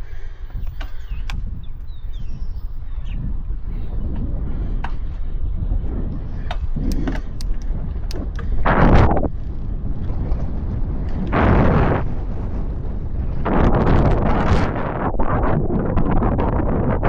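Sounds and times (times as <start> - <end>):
wind rumbling on microphone: 0.0 - 17.0
sharp clicks: 6.5 - 8.6.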